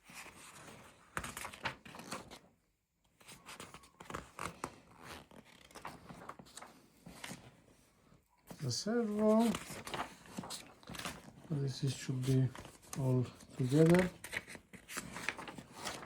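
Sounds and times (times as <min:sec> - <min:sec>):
paper and plastic rustling: 0:03.2 - 0:07.6, 0:08.4 - 0:16.0.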